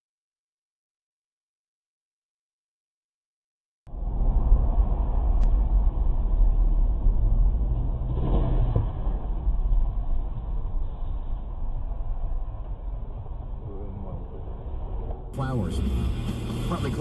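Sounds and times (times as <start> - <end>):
engine and road rumble: 3.9 - 17.0.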